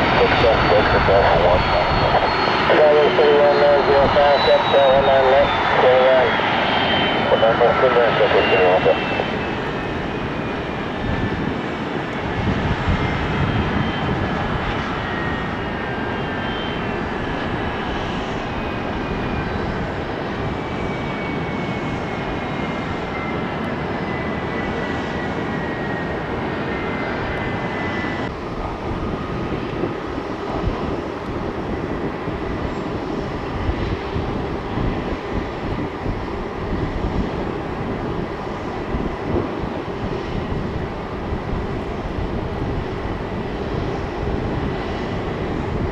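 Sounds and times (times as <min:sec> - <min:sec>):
steady jet rumble: 0:00.0 - 0:24.5, 0:25.3 - 0:45.9
jet engine whine falling in pitch: 0:00.0 - 0:45.9
jet engines rushing: 0:00.0 - 0:45.9.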